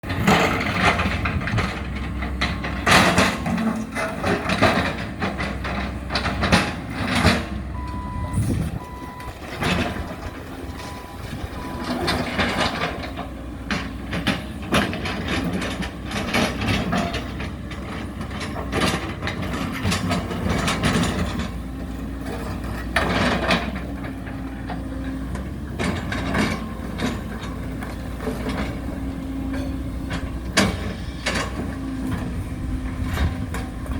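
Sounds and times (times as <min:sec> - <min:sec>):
heavy diesel machinery running: 0:00.0 - 0:33.9
reversing alarm beeping: 0:07.7 - 0:12.7
crashes and crunching of demolition: 0:08.5 - 0:33.9.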